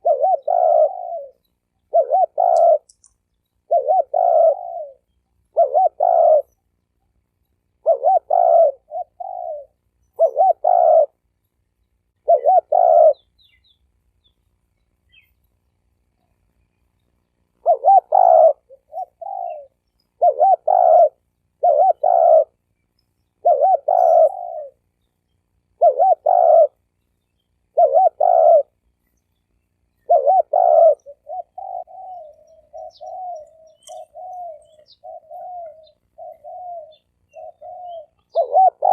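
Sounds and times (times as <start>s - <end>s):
dove cooing: 0.0s - 3.0s, 3.6s - 6.6s, 7.7s - 11.3s, 12.2s - 13.6s, 17.5s - 22.6s, 23.4s - 24.9s, 25.7s - 26.9s, 27.7s - 28.8s, 30.0s - 38.9s.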